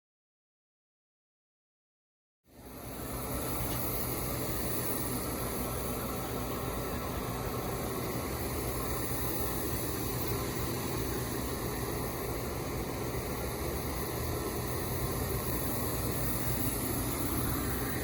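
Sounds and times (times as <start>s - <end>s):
even hiss: 2.5s - 18.0s
steady machine hum: 2.5s - 18.0s.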